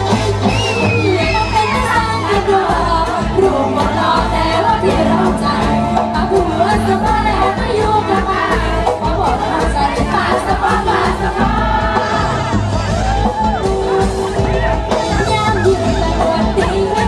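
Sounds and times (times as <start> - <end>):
live band music: 0.0 - 17.0
person singing: 13.6 - 17.0.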